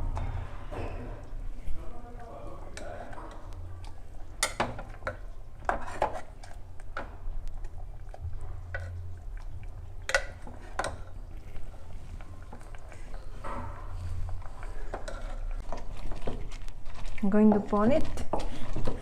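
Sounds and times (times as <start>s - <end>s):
metal utensils clinking on pot: 2.6s - 7.2s, 8.6s - 9.2s, 9.9s - 11.3s, 12.4s - 16.3s.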